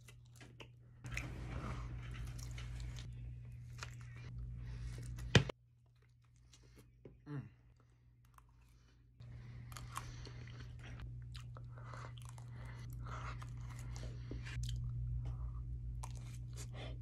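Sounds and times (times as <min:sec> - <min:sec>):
low hum: 0:00.1 - 0:17.0
wet chewing and smacking: 0:07.7 - 0:16.8.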